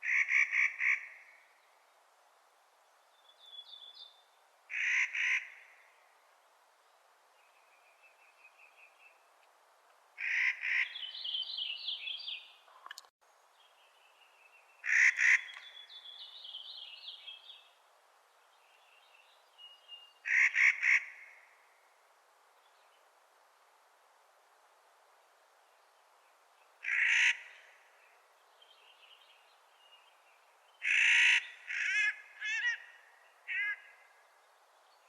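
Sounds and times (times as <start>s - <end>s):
bird harsh grating calls: 4.7s - 5.6s, 10.2s - 11.1s, 14.8s - 15.8s, 20.2s - 21.2s, 26.8s - 27.6s, 30.8s - 32.9s, 33.5s - 34.0s.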